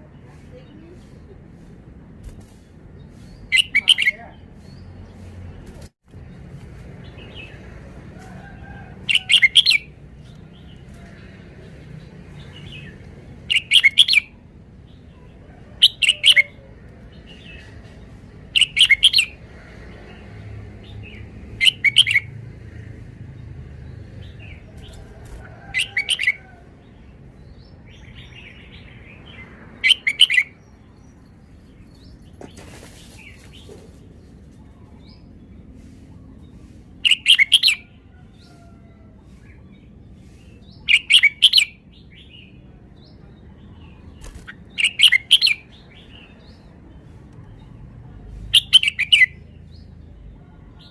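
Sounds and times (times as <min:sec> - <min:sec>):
bulbul singing short phrases: 0:03.5 - 0:04.4.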